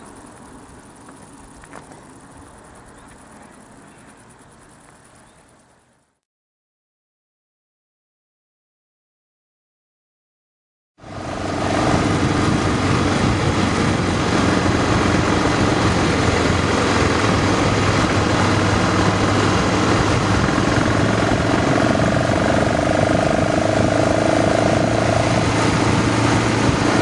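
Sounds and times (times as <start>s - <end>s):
motorcycle engine running: 11.0s - 27.0s
wind noise: 11.0s - 27.0s.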